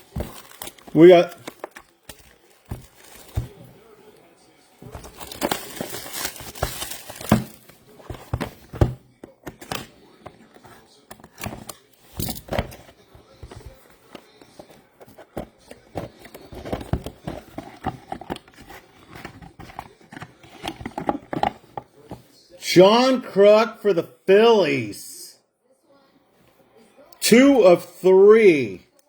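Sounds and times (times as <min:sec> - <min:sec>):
cards clicking and tapping: 0:00.0 - 0:03.6
foil wrappers crinkling and tearing: 0:00.0 - 0:03.6, 0:04.9 - 0:08.4.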